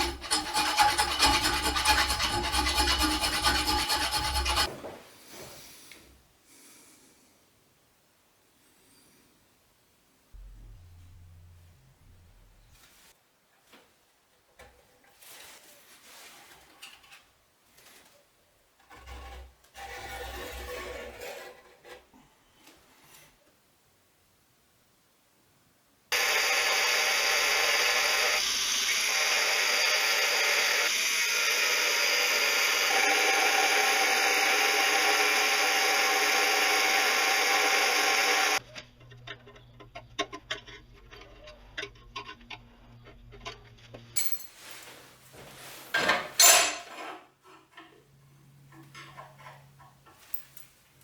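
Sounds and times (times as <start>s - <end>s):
angle grinder running: 0.0s - 4.7s, 26.1s - 38.6s
low hum: 10.4s - 12.9s.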